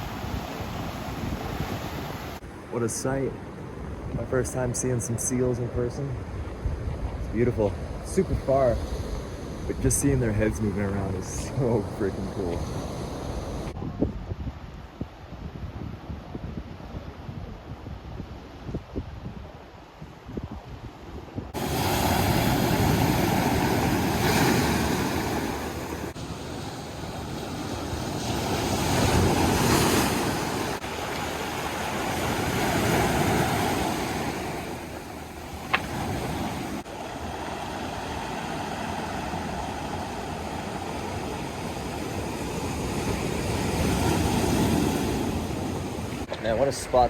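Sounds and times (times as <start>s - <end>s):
surf breaking on rocks: 21.6s - 47.0s.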